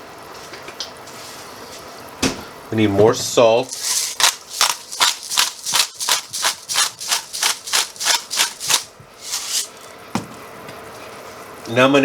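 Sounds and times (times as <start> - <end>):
salt grinder rasping: 3.7 - 9.9.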